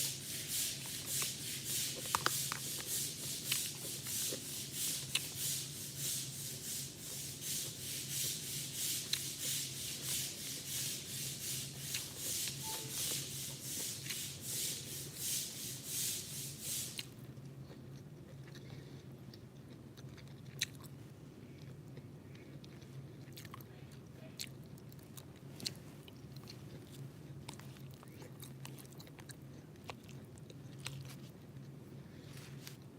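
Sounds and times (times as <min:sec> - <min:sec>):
rhythmic scraping strokes: 0:00.0 - 0:16.5.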